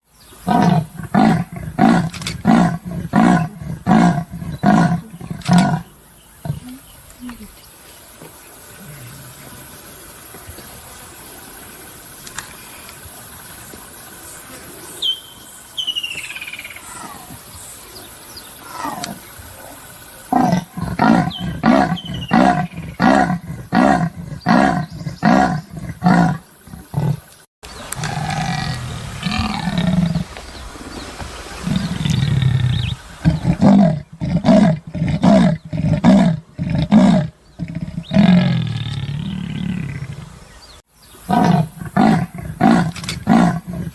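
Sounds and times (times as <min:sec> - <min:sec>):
leopard rasping grunts: 0:00.5 - 0:06.8, 0:20.3 - 0:27.3, 0:31.7 - 0:40.3, 0:41.3 - 0:43.9
low rumbling: 0:27.8 - 0:40.4.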